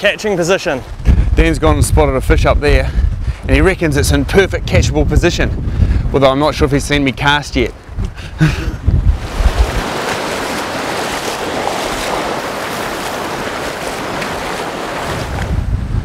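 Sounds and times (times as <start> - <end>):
wind buffeting microphone: 0.7 - 16.0
boots wading through river: 9.2 - 15.6.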